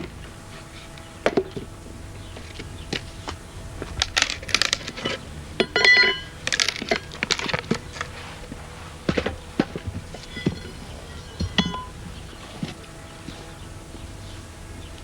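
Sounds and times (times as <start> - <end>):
wood splitting cracks: 0.0 - 13.6
metallic clink: 5.6 - 7.2, 10.2 - 12.0.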